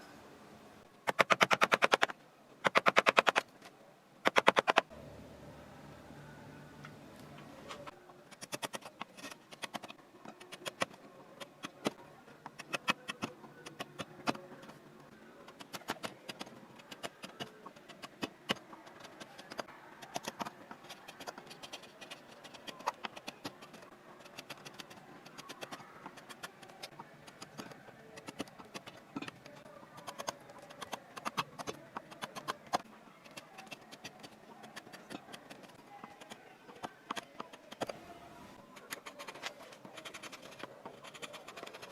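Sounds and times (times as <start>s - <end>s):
carving tools cutting wood: 8.3s - 14.4s, 15.5s - 38.0s, 38.8s - 41.9s.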